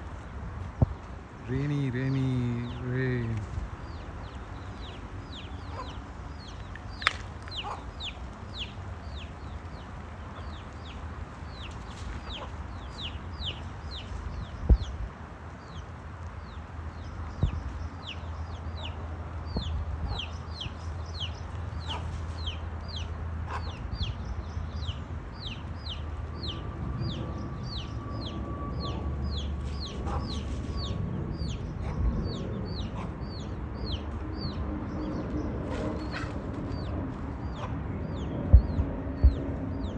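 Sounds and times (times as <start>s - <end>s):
chickens peeping: 0.0s - 14.9s, 16.4s - 27.9s, 28.9s - 39.9s.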